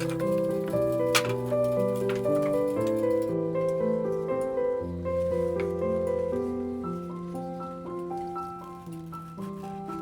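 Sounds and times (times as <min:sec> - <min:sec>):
gentle piano chords: 0:00.0 - 0:10.0.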